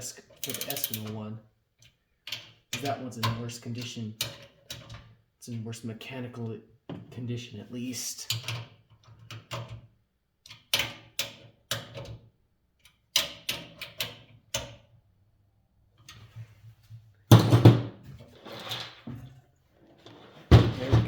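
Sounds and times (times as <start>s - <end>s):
metal parts clicking and knocking: 0.3s - 1.2s.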